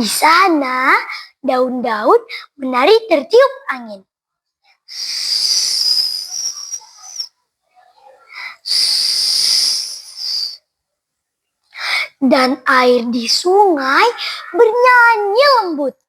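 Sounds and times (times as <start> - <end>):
child blowing whistling hiss: 4.9 - 7.3, 8.3 - 10.6.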